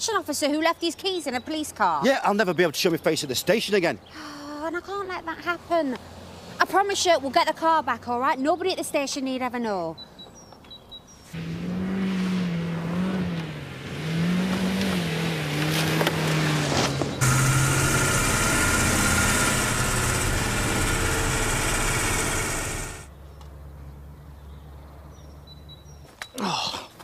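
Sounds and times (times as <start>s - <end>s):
car engine revving: 11.4s - 23.1s.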